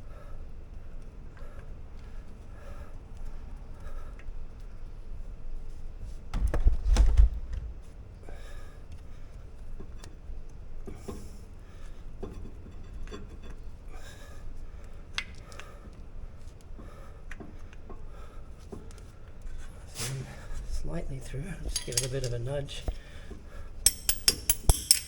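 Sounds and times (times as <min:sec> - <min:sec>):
heavy bump and knocking: 0:06.3 - 0:08.2
metallic clicks of brake parts: 0:21.6 - 0:23.2, 0:23.9 - 0:25.0.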